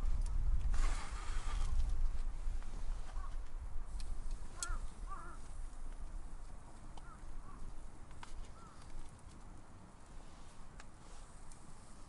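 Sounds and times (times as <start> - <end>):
steady low rumble: 0.0 - 8.1.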